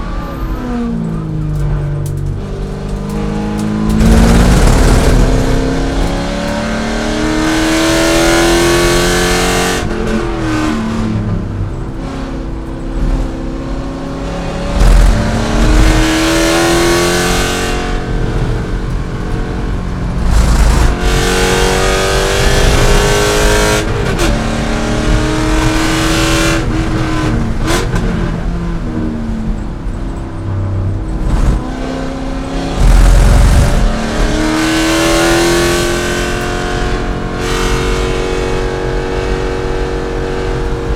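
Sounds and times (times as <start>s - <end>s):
car engine racing at full throttle: 0.0s - 40.9s
heavy low thumps: 3.7s - 7.0s, 12.8s - 29.0s, 30.5s - 34.9s.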